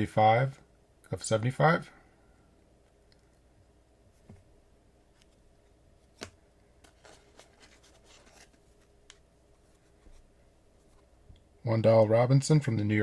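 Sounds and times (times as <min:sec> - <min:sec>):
trading cards clicking and rubbing: 0:06.1 - 0:10.2.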